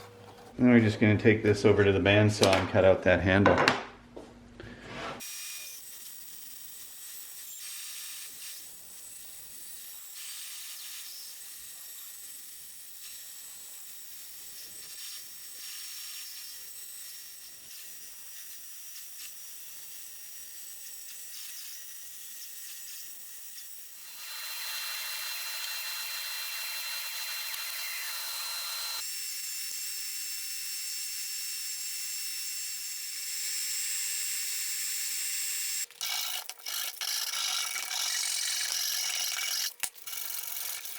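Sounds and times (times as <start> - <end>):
bandsaw running: 35.7 - 40.9.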